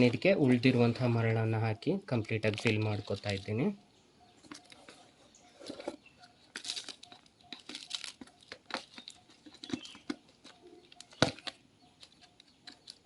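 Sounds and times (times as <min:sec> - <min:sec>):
gritty sand crunches and rustles: 0:02.4 - 0:03.8.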